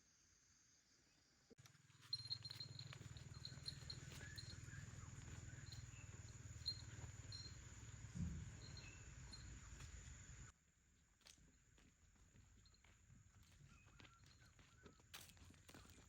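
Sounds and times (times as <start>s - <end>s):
faint high chirps: 1.6s - 10.5s, 13.5s - 16.0s.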